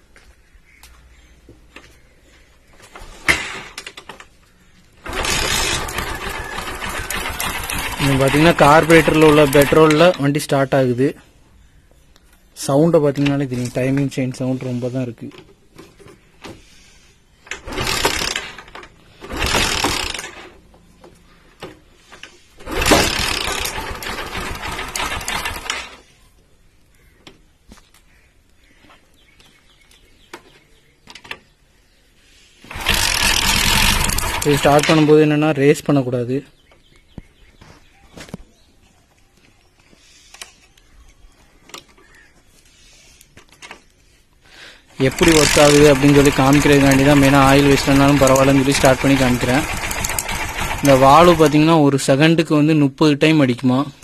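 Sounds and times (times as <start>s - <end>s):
motorcycle engine running: 5.0s - 9.8s, 22.7s - 25.8s, 32.7s - 34.9s, 45.0s - 51.7s
timing chain clattering: 5.0s - 10.1s, 17.7s - 20.5s, 22.6s - 25.9s, 32.7s - 35.2s, 45.0s - 51.6s.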